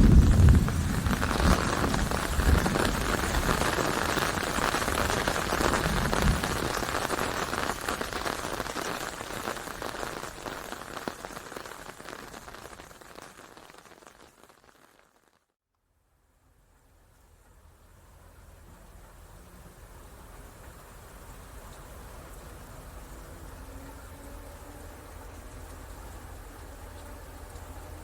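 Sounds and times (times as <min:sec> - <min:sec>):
low rumble: 0:00.0 - 0:03.6
rain falling: 0:00.0 - 0:15.5, 0:16.5 - 0:28.0.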